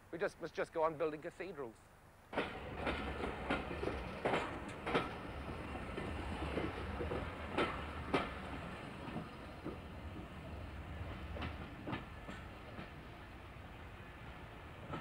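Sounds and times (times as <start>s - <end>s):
passenger train rumbling past: 2.3s - 15.0s
wheel clacks over rail joints: 2.4s - 10.4s.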